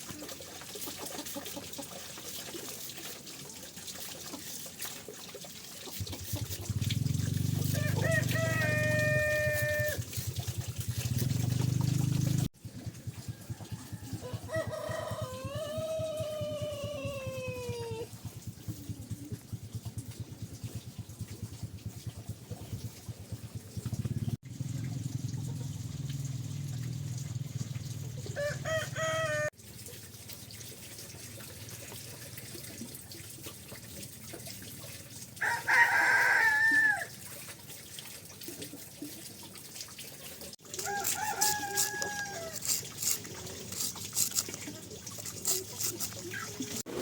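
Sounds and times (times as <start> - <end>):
rooster crowing: 7.7 - 10.0, 13.4 - 17.6, 28.4 - 29.5, 35.4 - 37.1, 40.8 - 42.6.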